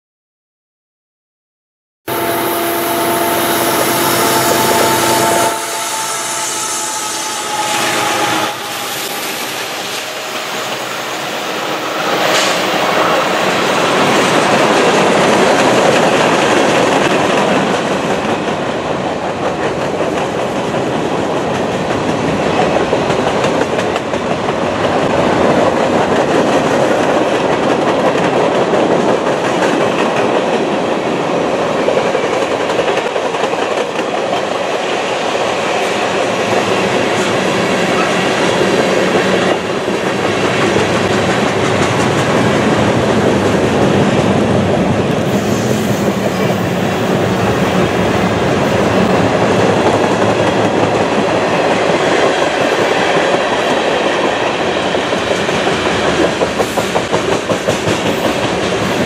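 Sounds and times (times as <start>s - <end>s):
steady ringing tones: 2.1s - 11.8s
freight train wheels clacking: 2.1s - 59.0s.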